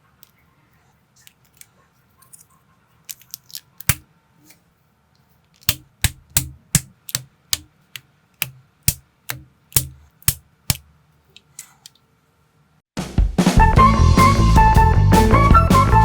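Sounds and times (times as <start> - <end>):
plastic blocks clicking together: 3.1 - 4.0.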